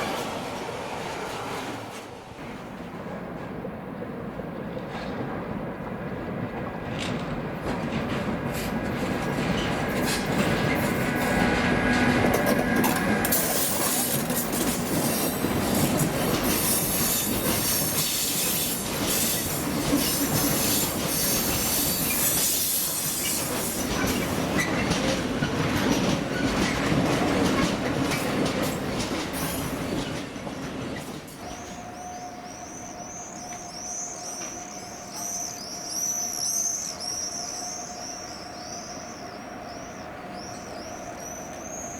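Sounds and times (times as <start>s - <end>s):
train wheels clattering over rail joints: 6.5s - 31.9s.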